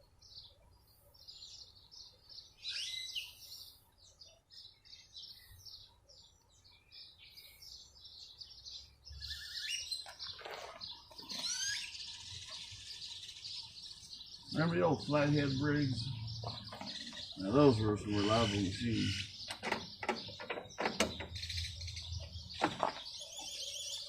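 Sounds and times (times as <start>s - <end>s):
birds chirping and singing: 0.0s - 24.0s.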